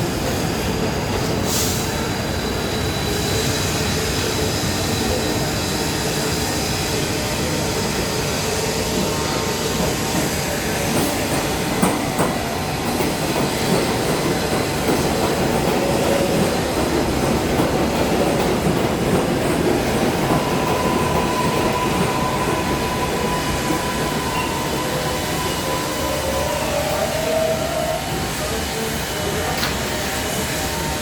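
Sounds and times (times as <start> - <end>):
subway train wheels rumbling: 0.0 - 31.0
wheel squeal: 20.3 - 29.9.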